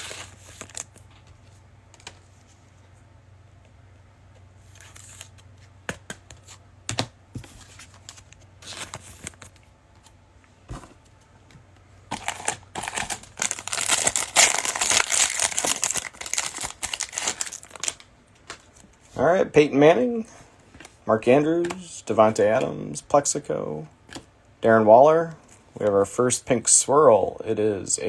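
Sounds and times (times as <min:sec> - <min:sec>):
foil wrapper crinkling: 0:12.1 - 0:18.7
wrapper clicks and rustles: 0:12.1 - 0:18.8.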